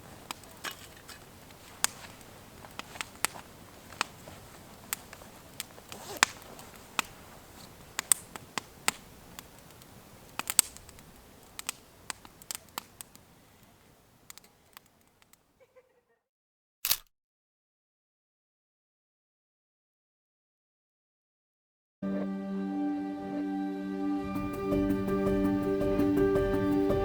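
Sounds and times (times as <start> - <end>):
campfire crackling and popping: 0.0 - 15.5.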